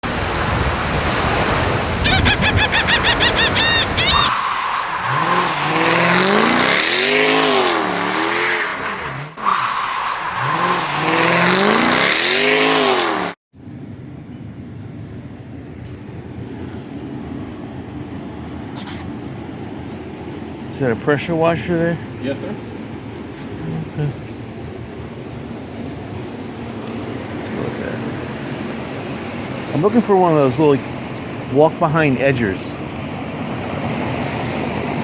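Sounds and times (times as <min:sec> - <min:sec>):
engine revving with squealing: 0:01.5 - 0:13.4.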